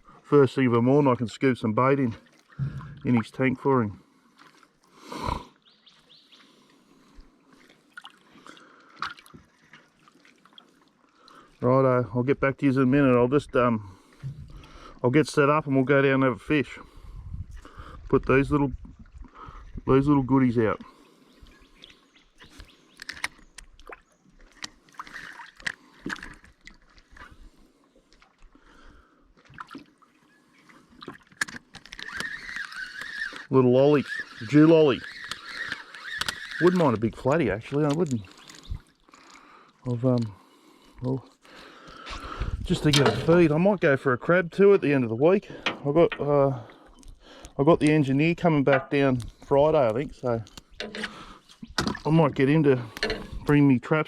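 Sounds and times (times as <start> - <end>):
water sloshing in a boat: 0.0 - 54.0
water dripping and splashing: 2.0 - 3.4, 7.5 - 11.6, 21.4 - 28.7, 29.4 - 33.5, 45.5 - 53.5.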